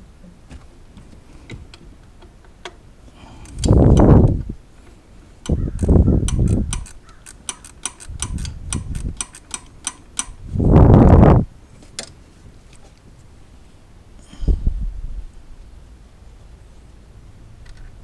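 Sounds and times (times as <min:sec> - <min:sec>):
low rumbles: 0:03.3 - 0:04.7, 0:05.4 - 0:07.0, 0:10.2 - 0:11.5, 0:14.3 - 0:16.0
ratchet clicking: 0:03.4 - 0:04.5, 0:05.4 - 0:10.8.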